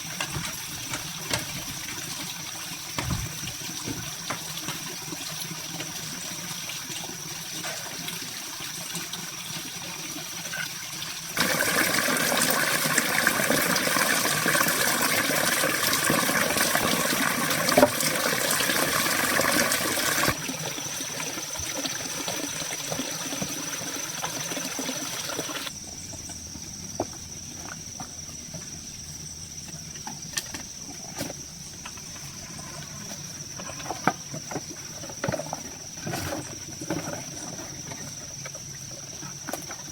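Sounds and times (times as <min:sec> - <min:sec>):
running splashing water: 0:00.0 - 0:25.7.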